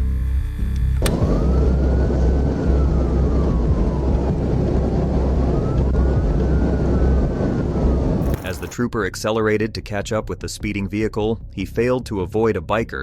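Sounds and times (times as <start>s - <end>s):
click: 0.7s - 1.2s
police siren wailing: 1.0s - 8.7s
car engine and road noise: 1.0s - 8.8s.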